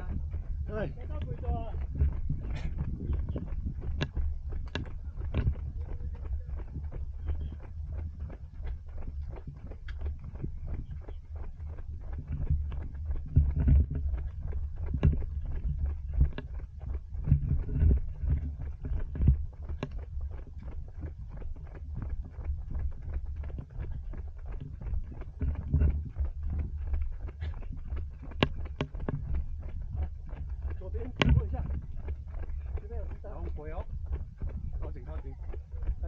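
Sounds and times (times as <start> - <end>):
running footsteps: 0.0 - 36.0
wind buffeting microphone: 0.0 - 36.0.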